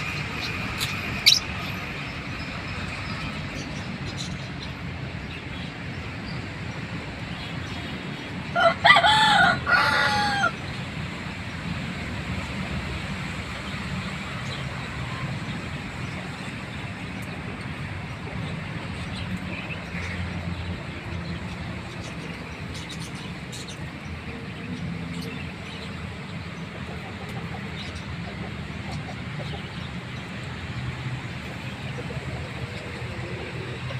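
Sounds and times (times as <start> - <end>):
steady background noise: 0.0 - 33.9.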